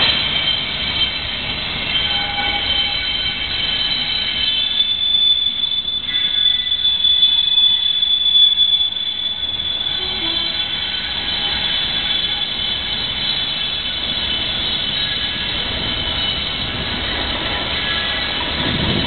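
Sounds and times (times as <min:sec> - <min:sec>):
distant train rumble: 0:00.0 - 0:19.0
high-pitched whine: 0:00.0 - 0:19.0.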